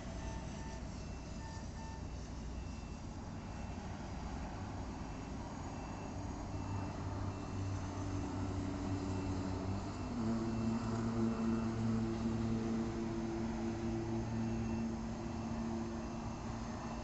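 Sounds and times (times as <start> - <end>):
heavy machinery engines humming: 0.0 - 17.0
high warning beep: 13.8 - 17.0.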